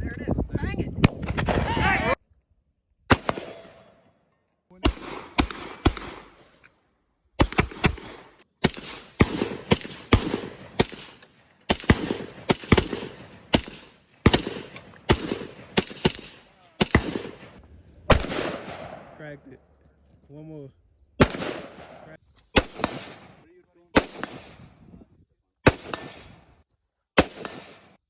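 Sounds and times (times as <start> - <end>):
gunshots: 3.1 - 4.0, 4.8 - 6.6, 7.4 - 19.4, 21.2 - 24.7, 25.6 - 26.5, 27.2 - 28.0.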